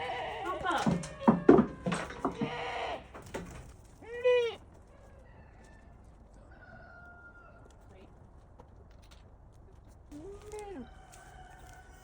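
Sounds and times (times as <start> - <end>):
farm animal call: 0.0 - 3.2
knocks and clatter: 0.6 - 3.8.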